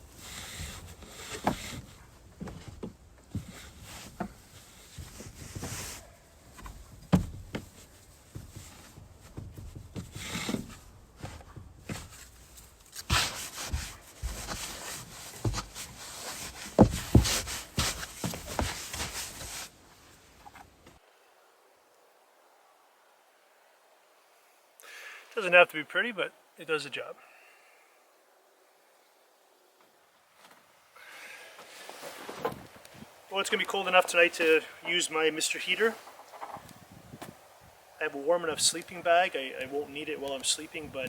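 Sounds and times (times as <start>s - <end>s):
hands rubbing fabric: 13.0s - 19.7s.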